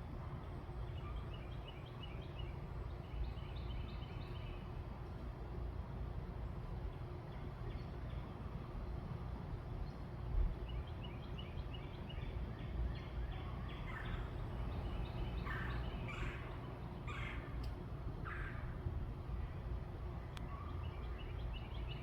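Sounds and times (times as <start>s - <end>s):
low background rumble: 0.0s - 22.0s
harsh bird calls: 13.0s - 17.6s.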